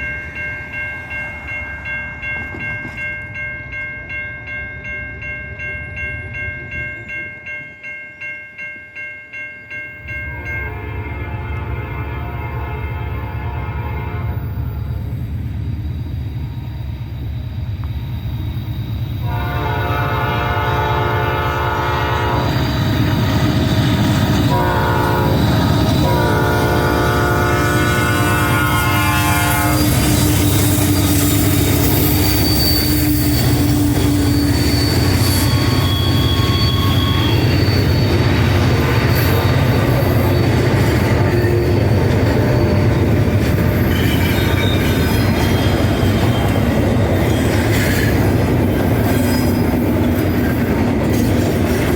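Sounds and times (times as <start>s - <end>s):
passing train rumble and rail clatter: 0.0s - 51.9s
locomotive air horn blasts: 10.3s - 14.6s, 19.2s - 22.6s, 24.5s - 30.4s
wheel squeal: 14.9s - 19.3s, 29.8s - 51.8s.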